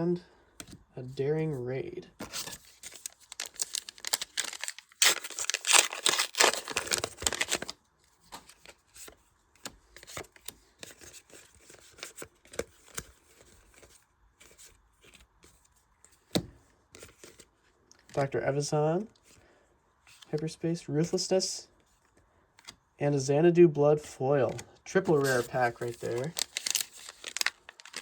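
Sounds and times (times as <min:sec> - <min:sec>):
cards rustling: 0:02.1 - 0:18.4, 0:20.1 - 0:20.5, 0:24.0 - 0:28.0
wrapper tearing and crinkling: 0:02.4 - 0:07.8, 0:25.1 - 0:28.0.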